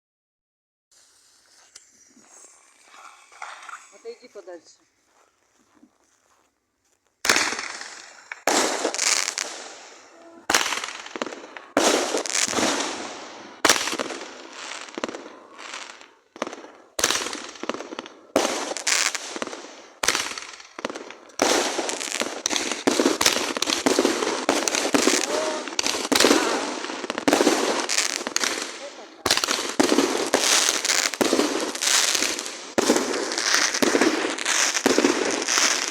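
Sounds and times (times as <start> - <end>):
fireworks bangs: 7.2 - 35.9.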